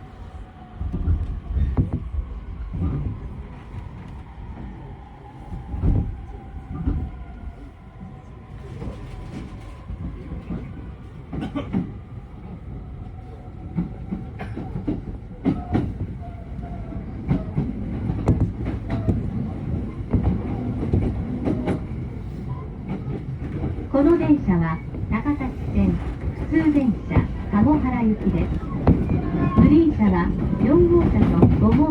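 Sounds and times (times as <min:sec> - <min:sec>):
low train rumble: 0:00.0 - 0:31.9
train wheels clacking over joints: 0:13.8 - 0:31.9.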